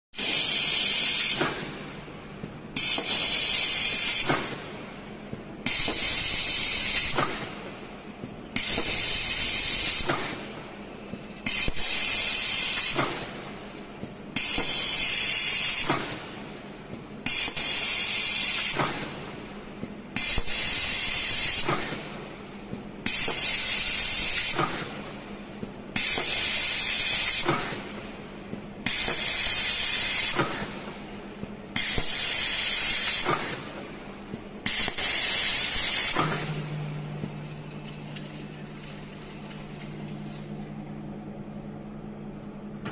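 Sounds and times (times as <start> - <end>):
welding machine click: 0.2 - 1.8, 2.4 - 7.5, 34.6 - 40.6
compressed air hiss: 2.8 - 4.6, 5.7 - 7.5, 8.6 - 10.4, 28.9 - 30.8, 31.8 - 33.8, 34.6 - 36.6.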